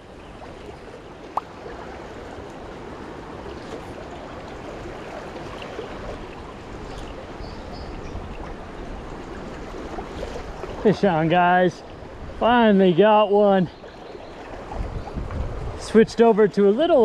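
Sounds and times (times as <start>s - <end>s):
fast-flowing river rushing: 0.0s - 13.6s.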